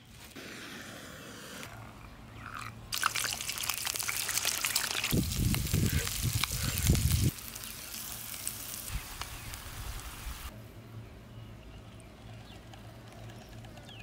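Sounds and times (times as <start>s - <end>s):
food sizzling in hot oil: 3.0s - 10.5s.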